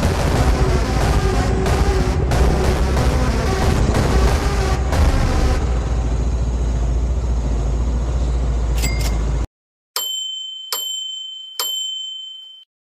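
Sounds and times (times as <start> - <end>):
loud rumble and hiss: 0.0 - 9.4
bell-like dings: 8.8 - 9.3, 10.0 - 12.7.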